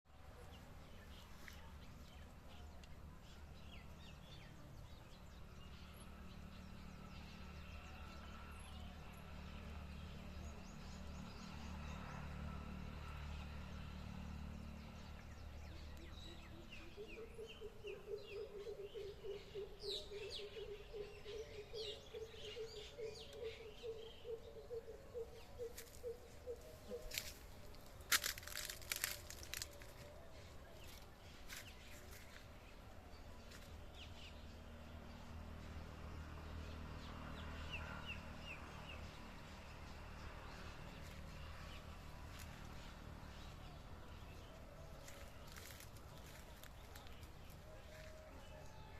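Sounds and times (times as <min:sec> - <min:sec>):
small birds chirping: 0:13.0 - 0:48.8.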